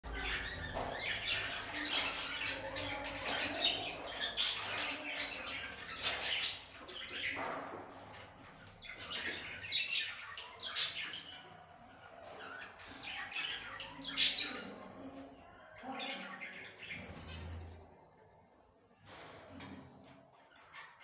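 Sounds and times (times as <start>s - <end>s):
budgerigars chattering: 0.1s - 7.6s, 8.6s - 14.8s.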